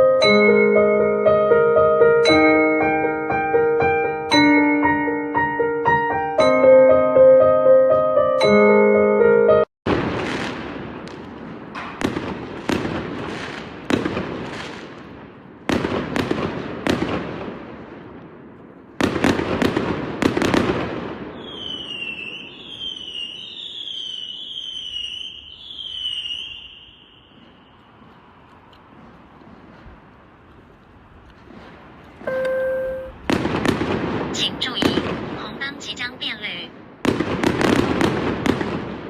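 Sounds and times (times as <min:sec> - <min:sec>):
fireworks banging: 0:09.9 - 0:39.0
firework whistles falling: 0:21.3 - 0:28.0.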